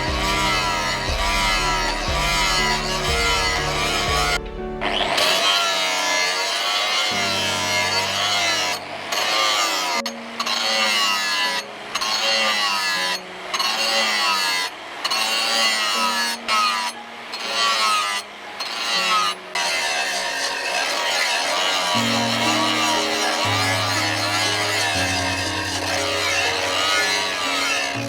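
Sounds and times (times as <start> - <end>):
wavering melody over bass notes: 0.0 - 5.4.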